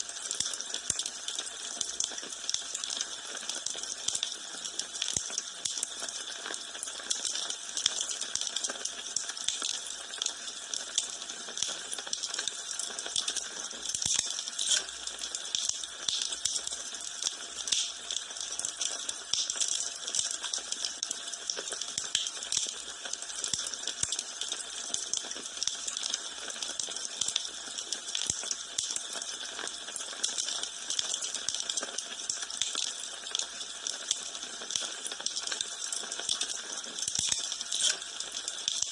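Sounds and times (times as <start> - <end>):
wood fire crackling: 11.6 - 20.7, 34.7 - 38.9.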